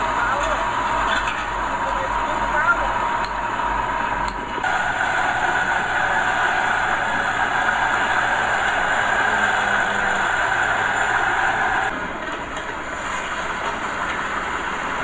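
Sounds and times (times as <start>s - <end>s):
heavy diesel engine droning: 0.0s - 11.9s.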